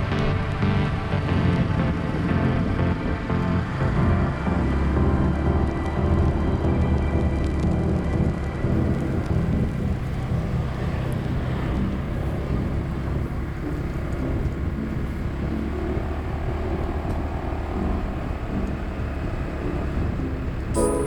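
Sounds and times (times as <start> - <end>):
motorbike engine rumbling: 8.6 - 21.0.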